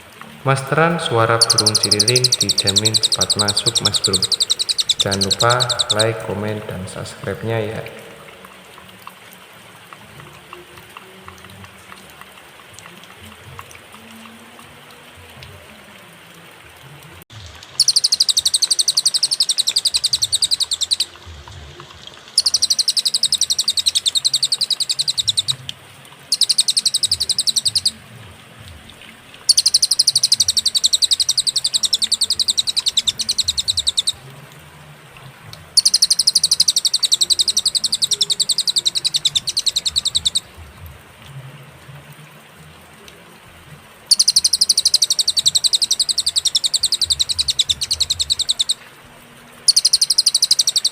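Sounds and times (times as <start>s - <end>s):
songbird rapid trilling: 0.0s - 8.8s, 17.8s - 21.1s, 22.4s - 25.5s, 26.3s - 28.0s, 29.5s - 34.2s, 35.8s - 40.5s, 44.1s - 48.8s, 49.7s - 50.9s.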